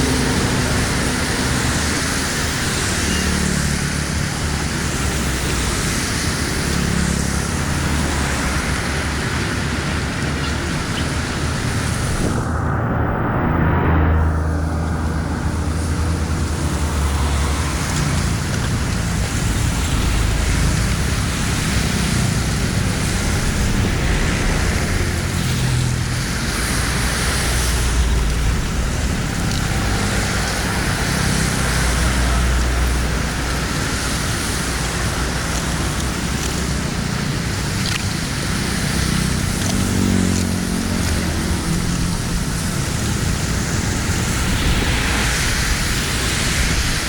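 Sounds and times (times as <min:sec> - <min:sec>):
deep rumble: 0:11.0 - 0:16.8, 0:22.6 - 0:30.9, 0:43.6 - 0:47.0.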